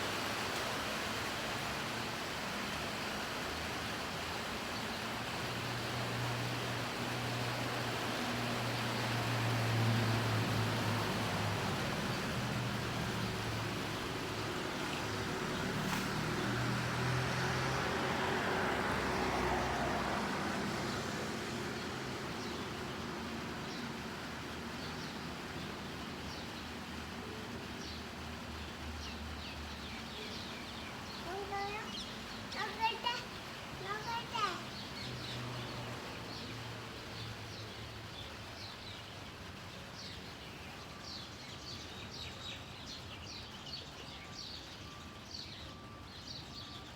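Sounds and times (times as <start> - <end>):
vehicle swishing past on wet road: 0.0 - 28.0, 31.0 - 39.2
rain: 0.0 - 46.9
low engine hum: 5.2 - 28.4.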